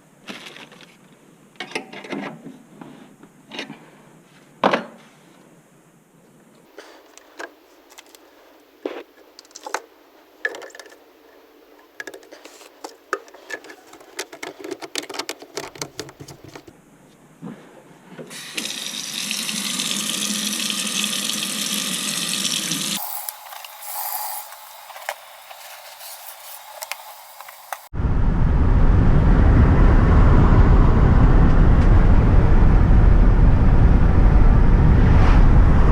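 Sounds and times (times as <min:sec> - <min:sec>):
parts and tools clicking: 0:11.8 - 0:16.7
running water: 0:18.3 - 0:27.9.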